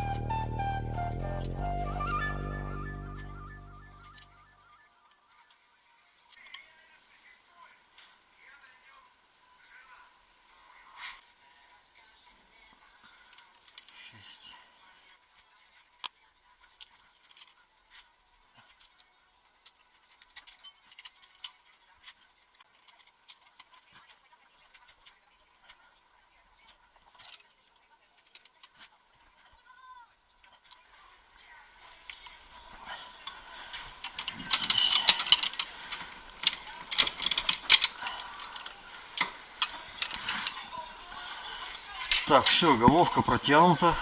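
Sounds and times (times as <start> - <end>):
hand tools clicking on metal: 33.8 - 40.6.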